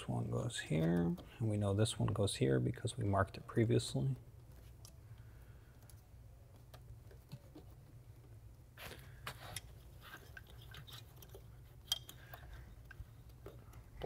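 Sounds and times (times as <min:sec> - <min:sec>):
plastic connectors clicking and rustling: 0:09.2 - 0:14.0.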